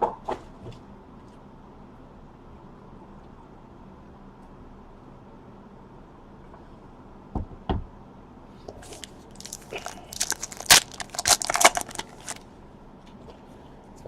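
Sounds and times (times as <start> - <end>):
packaging crinkling and tearing: 8.8 - 12.4.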